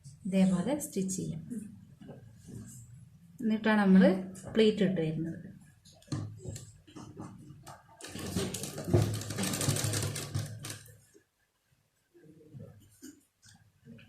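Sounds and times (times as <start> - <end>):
sewing machine stitching: 8.0 - 11.0.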